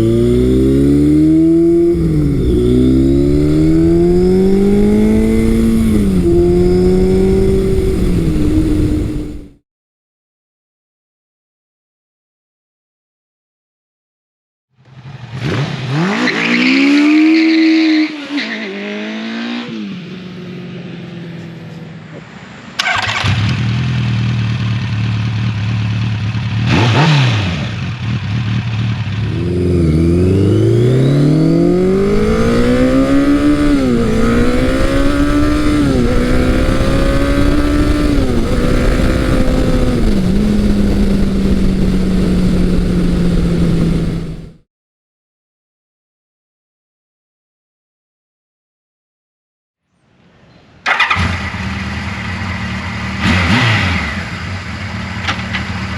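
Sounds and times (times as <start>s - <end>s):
motorcycle engine accelerating: 0.0s - 9.6s, 14.8s - 22.2s, 22.8s - 44.6s, 50.9s - 55.9s
motorcycle engine idling: 23.3s - 26.7s, 27.8s - 29.6s.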